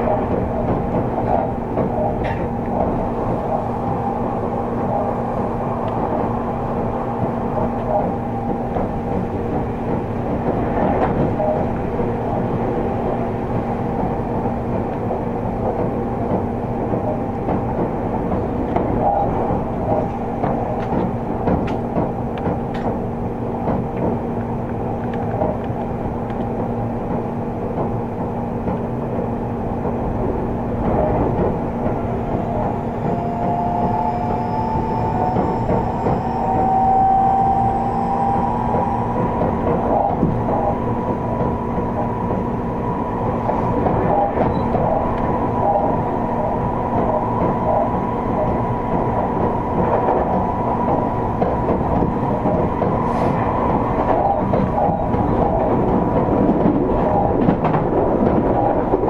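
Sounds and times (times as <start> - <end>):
train wheels rumbling on rail: 0.0 - 59.0
rising motor whine: 32.7 - 43.2.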